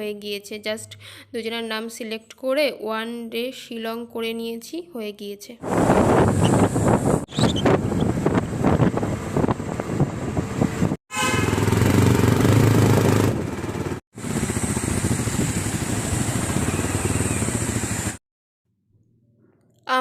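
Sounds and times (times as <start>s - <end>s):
road and wind noise: 5.6s - 18.2s
motorcycle engine running: 7.5s - 18.2s.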